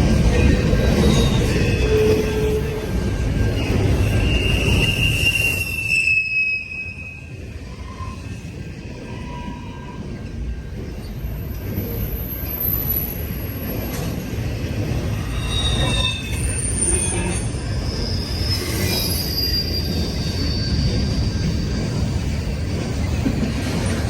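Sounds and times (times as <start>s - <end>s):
train wheels rumbling on rail: 0.0s - 24.0s
wheel squeal: 0.4s - 8.3s, 15.1s - 21.7s.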